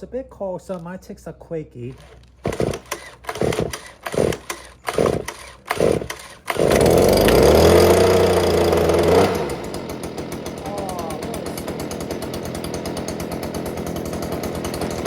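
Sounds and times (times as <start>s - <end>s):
pull cord pulls: 1.9s - 9.7s
leaf blower engine running: 1.9s - 15.0s.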